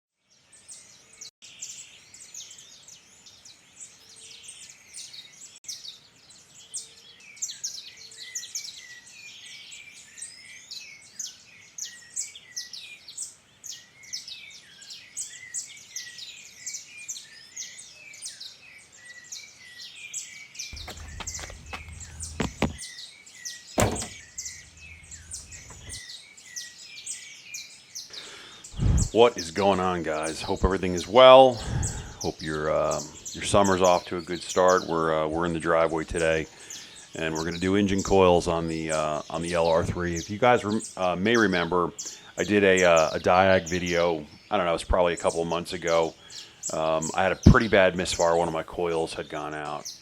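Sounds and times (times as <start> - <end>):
birds chirping: 0.5 - 50.0
low rumbling: 20.8 - 22.8, 23.8 - 26.0
sharp thump: 20.8 - 22.8, 23.8 - 26.0.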